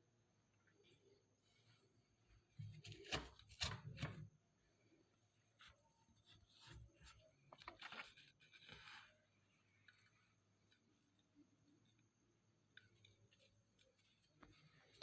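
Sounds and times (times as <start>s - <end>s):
faint rustling and rubbing: 4.9s - 15.0s.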